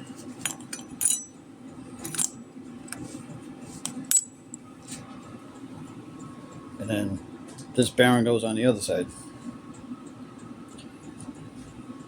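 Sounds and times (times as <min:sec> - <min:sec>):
metal parts clinking: 0:00.5 - 0:01.3, 0:02.0 - 0:02.4.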